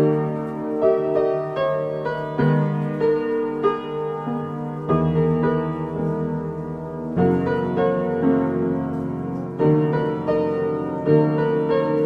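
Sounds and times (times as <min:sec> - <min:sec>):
piano playing: 0:00.0 - 0:12.0.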